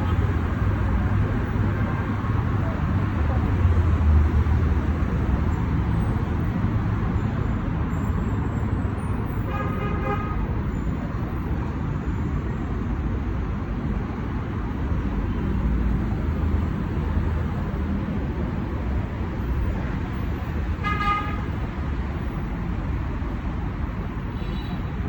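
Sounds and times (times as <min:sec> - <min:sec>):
road traffic: 0:00.0 - 0:25.0
vehicle horn: 0:09.5 - 0:10.5, 0:20.8 - 0:21.5.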